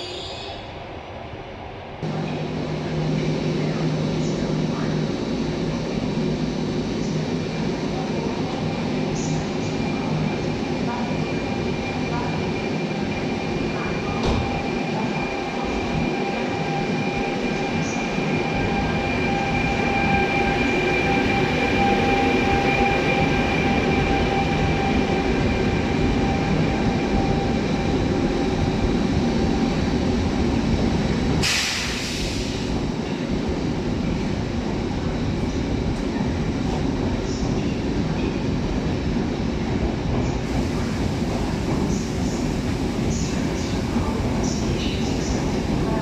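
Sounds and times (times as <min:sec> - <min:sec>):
train rumbling with high whine: 0:00.0 - 0:46.0
hissing air burst: 0:31.4 - 0:32.7.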